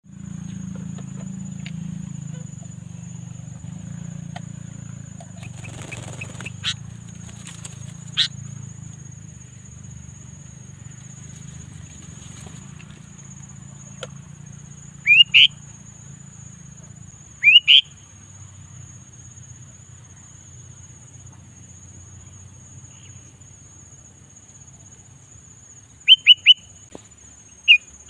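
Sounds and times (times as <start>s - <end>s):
steady low hum: 0.0s - 21.2s.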